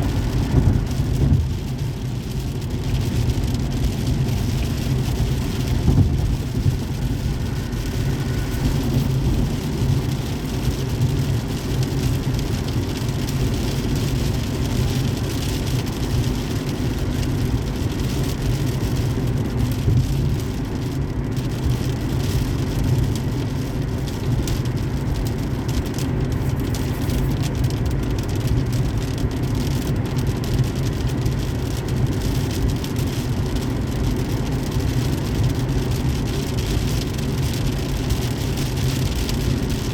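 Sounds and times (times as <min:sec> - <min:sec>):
car road and tyre noise: 0:00.0 - 0:39.9
rain: 0:00.0 - 0:39.9.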